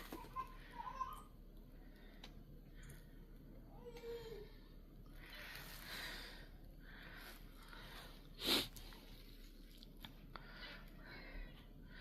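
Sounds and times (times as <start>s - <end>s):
person breathing: 1.7s - 9.3s, 10.3s - 12.0s
person sniffing: 8.4s - 8.8s.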